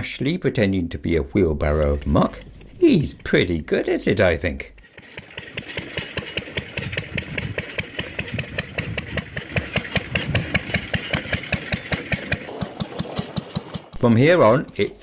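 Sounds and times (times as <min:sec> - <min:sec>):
single-cylinder engine chugging: 0:04.6 - 0:15.0.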